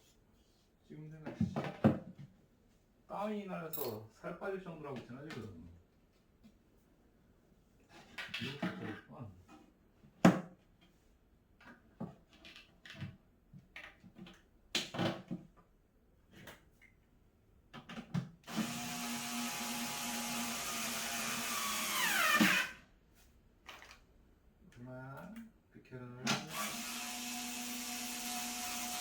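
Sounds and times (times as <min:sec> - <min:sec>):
power drill running: 0:18.5 - 0:22.8, 0:26.5 - 0:29.0.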